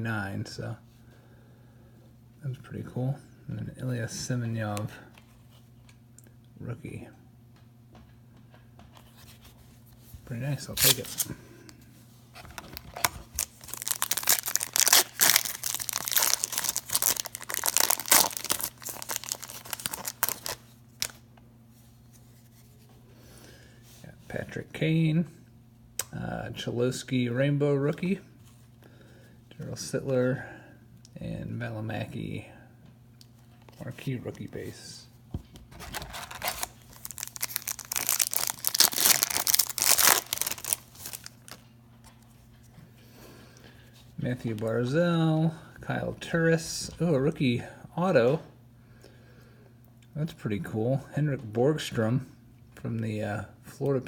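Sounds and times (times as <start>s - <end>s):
foil wrapper tearing and crinkling: 10.6s - 11.3s, 12.6s - 21.2s, 35.8s - 41.6s.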